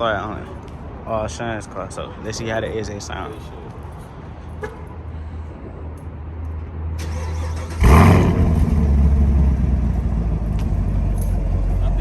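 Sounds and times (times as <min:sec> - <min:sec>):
car engine idling: 0:07.0 - 0:12.0
car engine starting and revving: 0:07.0 - 0:12.0.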